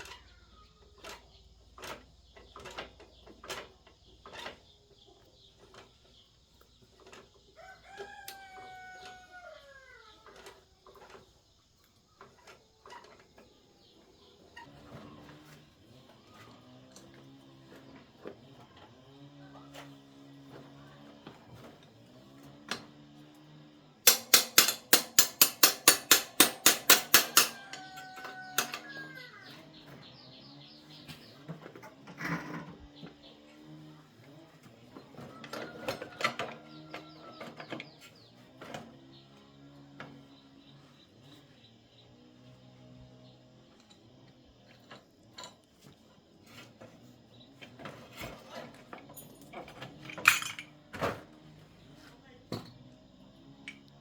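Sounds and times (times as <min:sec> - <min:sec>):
hand tools and metal parts clicking: 0:00.0 - 0:54.0
loud metal clatter: 0:24.1 - 0:27.9.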